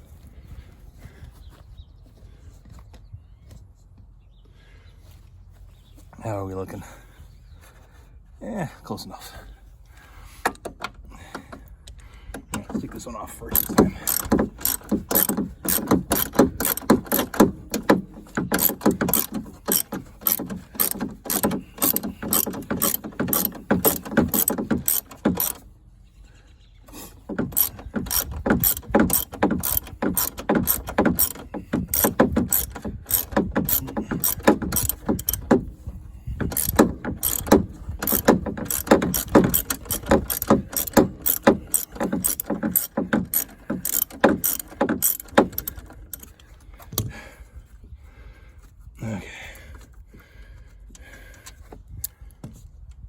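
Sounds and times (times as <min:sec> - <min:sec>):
ratchet wrench clicking: 0:13.5 - 0:25.6, 0:27.3 - 0:35.7, 0:36.4 - 0:46.3.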